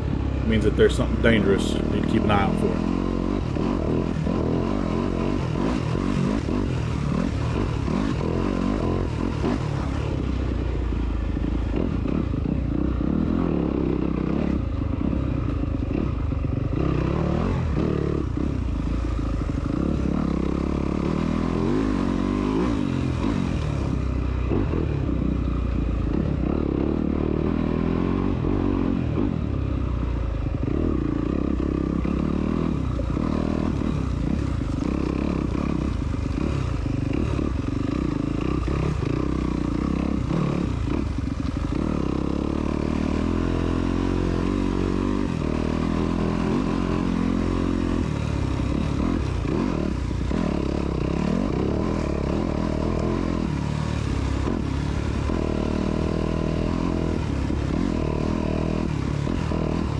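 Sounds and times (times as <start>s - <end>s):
off-road motorcycle engine: 0.0s - 59.9s.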